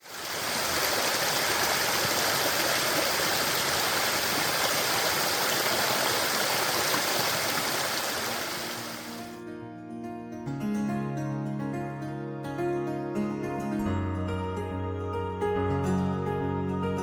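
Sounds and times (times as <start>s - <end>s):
stream water rushing: 0.0s - 9.4s.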